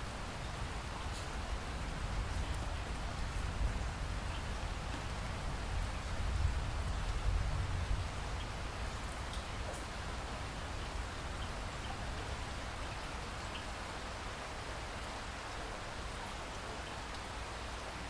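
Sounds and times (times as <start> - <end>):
steady rain hiss: 0.0 - 18.0
rain drop ticks: 1.1 - 1.4, 2.3 - 3.6, 9.2 - 9.9, 16.2 - 17.3.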